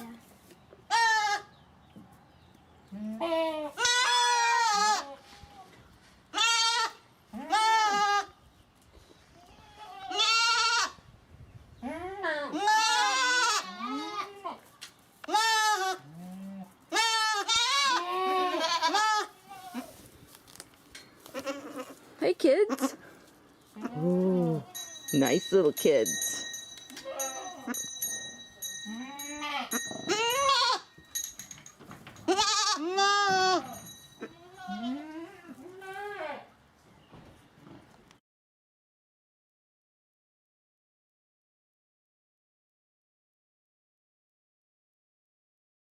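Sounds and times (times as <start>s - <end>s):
goats bleating: 2.9s - 5.2s, 6.3s - 8.3s, 9.4s - 11.0s, 11.8s - 14.6s, 15.3s - 20.0s, 21.3s - 22.0s, 23.8s - 24.8s, 28.9s - 30.9s, 32.3s - 36.5s.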